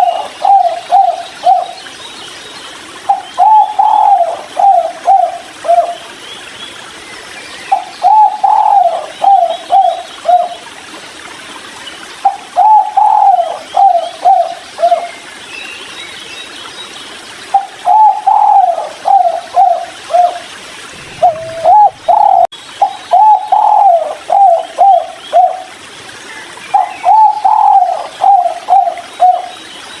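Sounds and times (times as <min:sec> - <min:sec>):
dove cooing: 0:00.0 - 0:01.8, 0:03.1 - 0:06.0, 0:08.0 - 0:10.5, 0:12.6 - 0:15.1, 0:17.6 - 0:25.7, 0:26.8 - 0:29.5.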